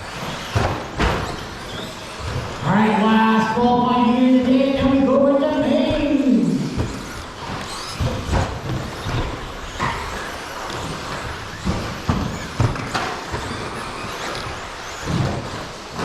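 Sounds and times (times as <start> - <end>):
electric motor whine: 0.0 - 16.0
tyre noise: 0.0 - 16.0
sharp knocks: 0.4 - 1.6.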